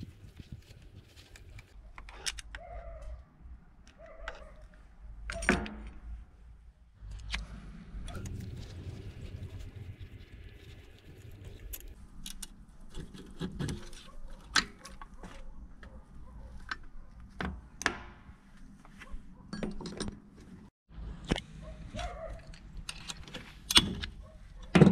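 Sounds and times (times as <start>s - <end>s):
metal tools clinking and knocking: 19.5s - 20.2s.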